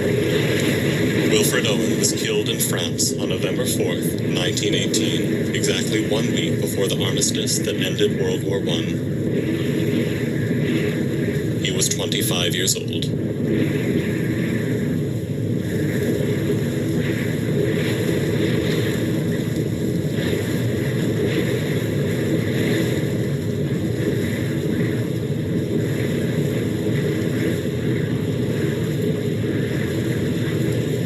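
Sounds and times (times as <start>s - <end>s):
blizzard wind rumble: 0.0s - 31.0s.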